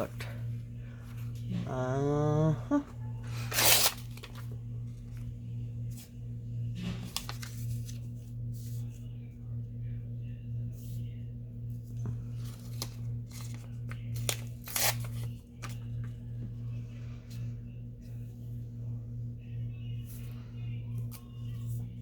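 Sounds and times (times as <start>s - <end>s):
steady low hum: 0.0s - 22.0s
paper tearing: 3.3s - 4.4s, 7.0s - 8.0s, 12.5s - 15.8s
paper being handled: 3.3s - 6.2s, 6.8s - 9.1s, 12.2s - 16.1s.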